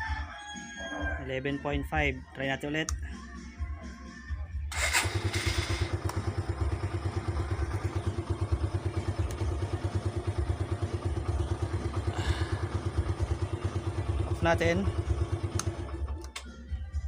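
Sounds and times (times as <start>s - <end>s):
motorcycle engine starting and idling: 4.7s - 16.6s.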